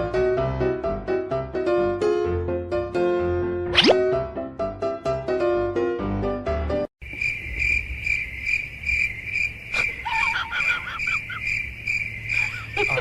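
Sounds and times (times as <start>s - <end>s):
piano background music: 0.0s - 6.9s
cricket chirping: 7.0s - 13.0s.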